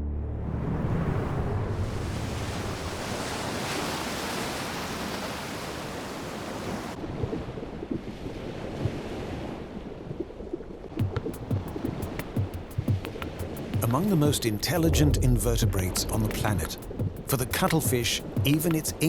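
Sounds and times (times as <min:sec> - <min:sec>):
ocean surf rushing: 0:00.4 - 0:07.0, 0:10.9 - 0:19.0
low bubbling blips: 0:14.8 - 0:18.6.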